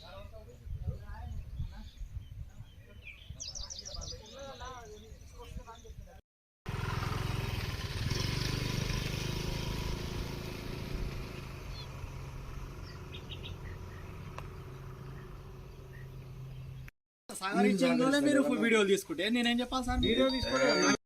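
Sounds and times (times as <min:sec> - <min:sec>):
faint high bird chirps: 0:12.8 - 0:16.9, 0:20.0 - 0:21.0.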